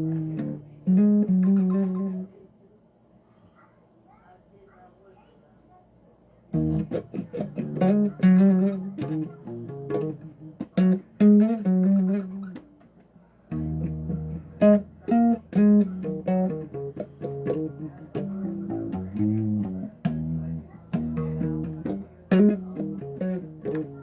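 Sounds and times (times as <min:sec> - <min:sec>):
bass guitar plucked notes: 0:00.0 - 0:02.2, 0:06.6 - 0:12.6, 0:13.5 - 0:24.0.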